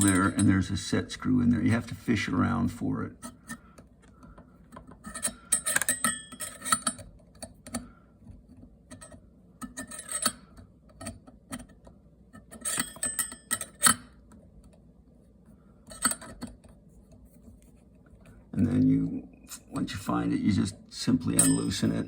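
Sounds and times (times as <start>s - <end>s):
screwdriver clicking on metal handle: 4.7s - 7.8s.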